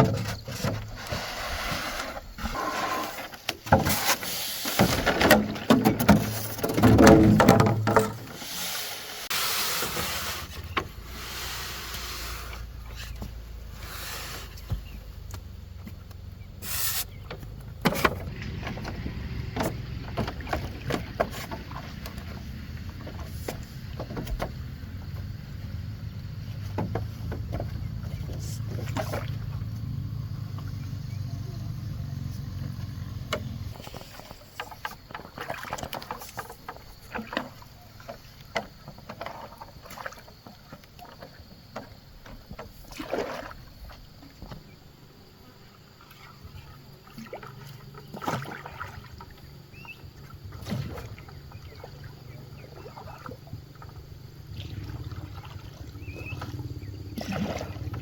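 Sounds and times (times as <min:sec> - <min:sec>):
wooden knocks: 0:04.8 - 0:08.3
water splashes: 0:16.6 - 0:58.0.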